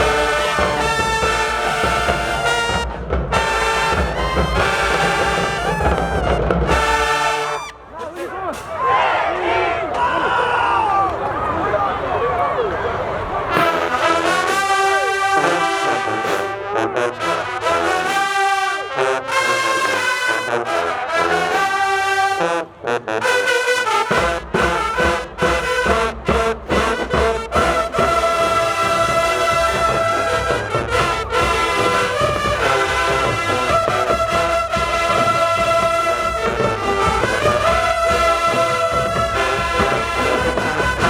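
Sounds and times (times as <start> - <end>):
brass held chords: 0.0 - 8.0, 13.4 - 41.0
drums: 0.0 - 9.0, 23.4 - 41.0.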